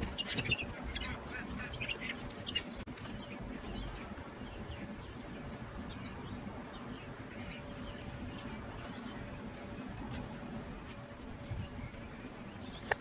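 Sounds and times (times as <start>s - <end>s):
small birds chirping: 0.0s - 13.0s
steady low background noise: 0.0s - 13.0s.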